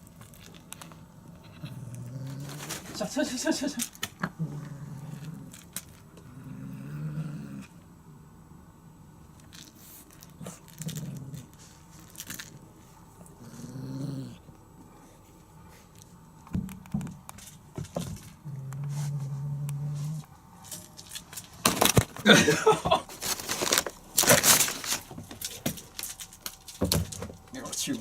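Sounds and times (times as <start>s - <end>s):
kittens growling: 0.9s - 7.8s, 10.2s - 11.9s, 13.2s - 15.0s, 18.2s - 20.4s.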